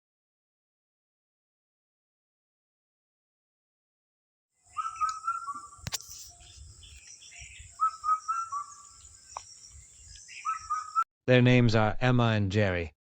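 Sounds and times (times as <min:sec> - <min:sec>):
bird whistling: 0:04.7 - 0:11.1
sharp click: 0:05.0 - 0:05.2, 0:05.8 - 0:06.3.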